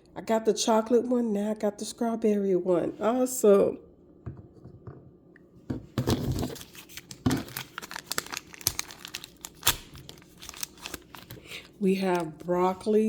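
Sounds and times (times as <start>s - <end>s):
plastic wrapper tearing and crinkling: 6.1s - 12.5s.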